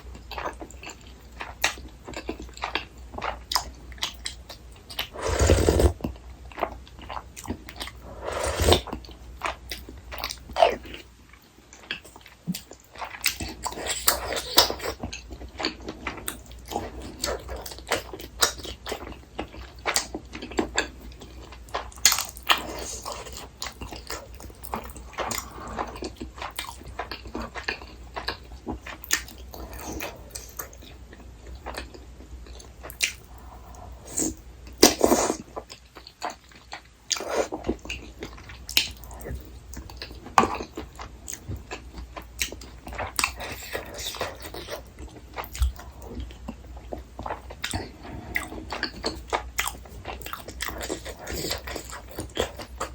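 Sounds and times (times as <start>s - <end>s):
person chewing and biting food: 11.8s - 30.8s, 39.8s - 52.9s.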